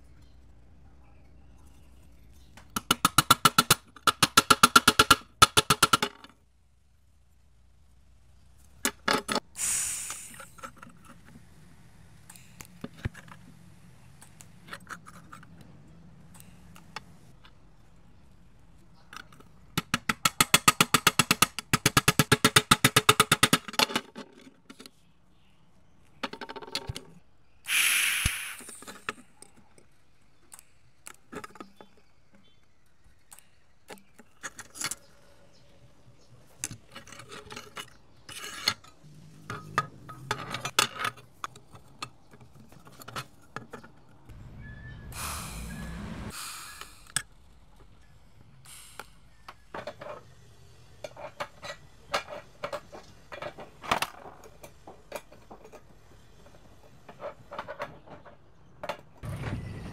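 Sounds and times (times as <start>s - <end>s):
short hiss: 9.5s - 10.6s, 27.7s - 28.9s, 44.9s - 47.2s, 48.6s - 49.3s.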